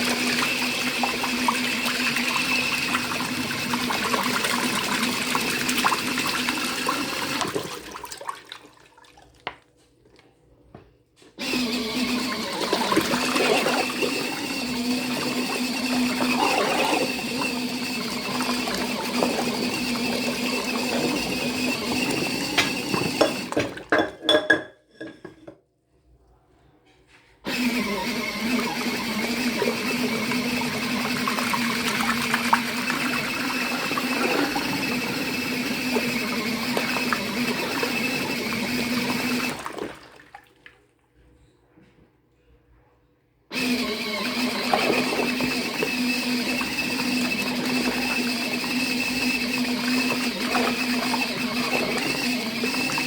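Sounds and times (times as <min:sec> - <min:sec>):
washing machine motor hum: 0:00.0 - 0:09.3, 0:11.4 - 0:23.9, 0:27.5 - 0:40.6, 0:43.5 - 0:53.0
water and cloths sloshing: 0:00.0 - 0:09.5, 0:33.5 - 0:41.2.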